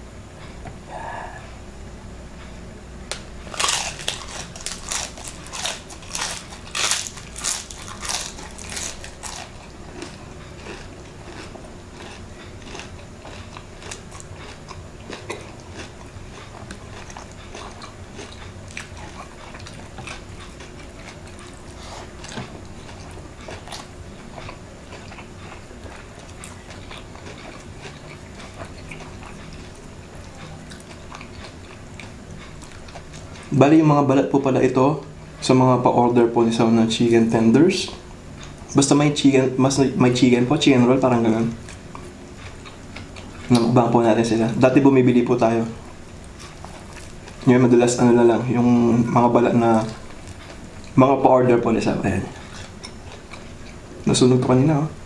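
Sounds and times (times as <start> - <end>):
crunching chicken skin: 3.1 - 29.8.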